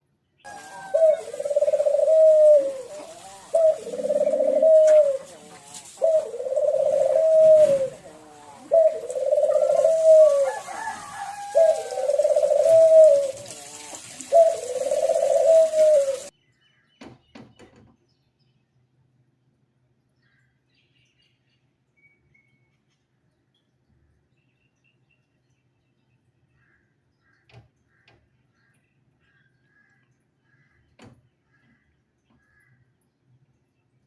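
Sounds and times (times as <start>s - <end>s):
bird low pulsing calls: 0.5s - 16.3s.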